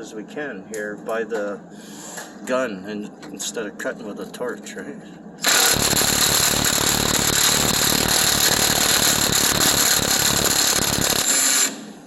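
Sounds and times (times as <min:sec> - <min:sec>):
impact wrench hammering: 0:05.4 - 0:11.8.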